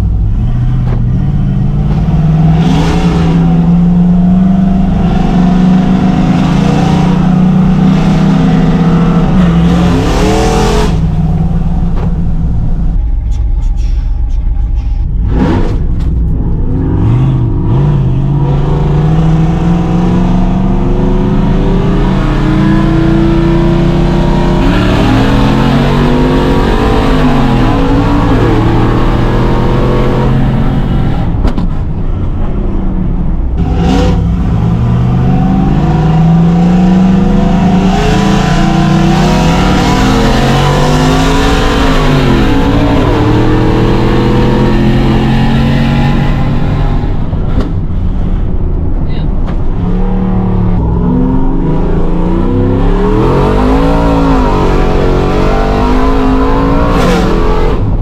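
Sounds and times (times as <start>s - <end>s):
truck engine accelerating hard: 0.0s - 58.0s.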